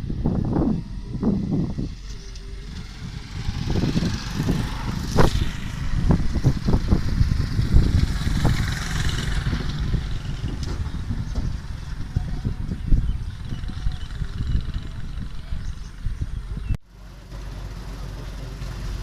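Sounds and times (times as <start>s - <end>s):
vehicle engine rumble: 0.0s - 19.0s
knocks and clattering: 8.5s - 12.0s.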